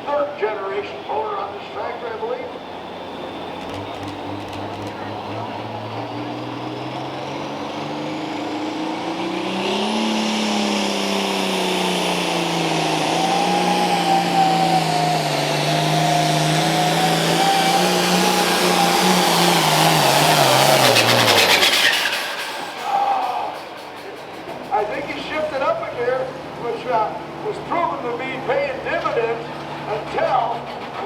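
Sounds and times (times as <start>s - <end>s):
tractor diesel engine at full throttle: 0.0s - 31.0s
high whine: 2.1s - 25.7s.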